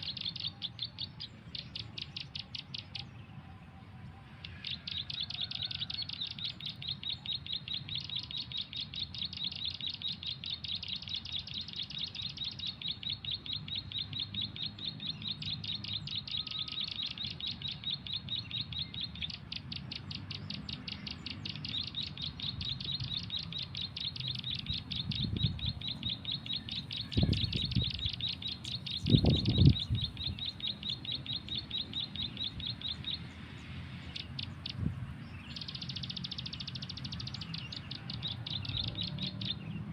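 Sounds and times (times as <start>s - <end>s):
high-pitched bird chirps from phone: 0.0s - 3.1s, 4.4s - 33.3s, 34.1s - 39.8s.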